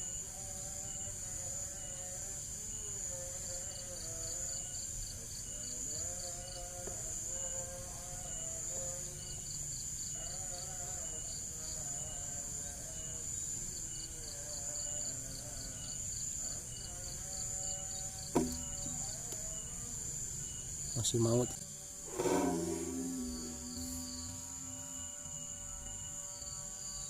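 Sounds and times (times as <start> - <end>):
crickets chirping: 0.0 - 27.0
high insect hiss: 0.0 - 27.0
sharp knock: 18.3 - 19.0
faint wavering tune: 20.4 - 26.8.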